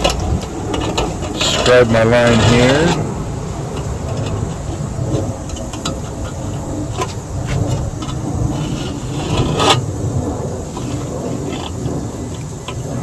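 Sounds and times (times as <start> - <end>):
metal scribe scratching steel: 0.0 - 9.9.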